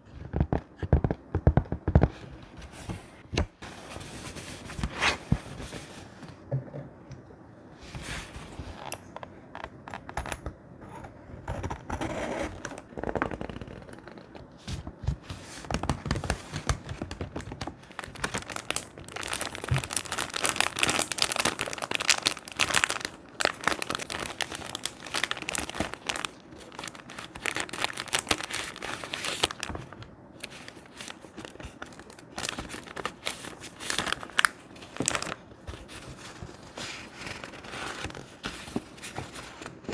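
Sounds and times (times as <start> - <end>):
paper crinkling and rustling: 12.6 - 39.9.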